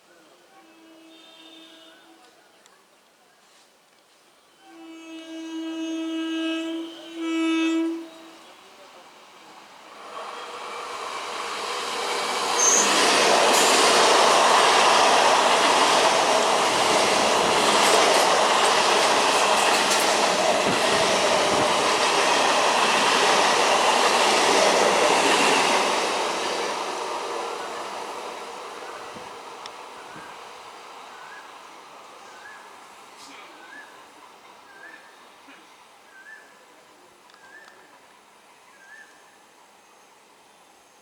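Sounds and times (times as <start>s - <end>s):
train wheels rumbling on rails: 9.9s - 31.3s
sharp rail clicks: 11.2s - 20.9s.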